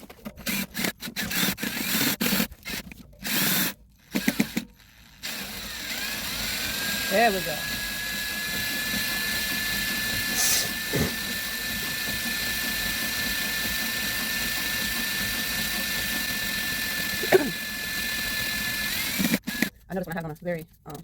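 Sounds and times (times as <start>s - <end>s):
cordless drill whining: 0.3s - 19.7s.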